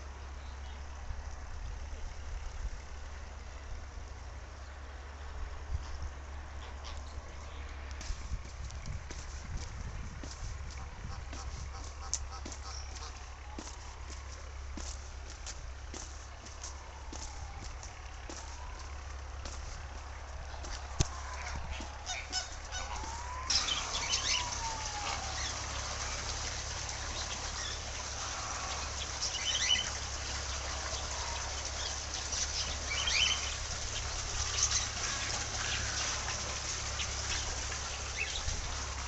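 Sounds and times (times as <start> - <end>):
bird chatter: 10.8 - 14.3, 20.3 - 38.8
gliding bird calls: 20.5 - 38.5.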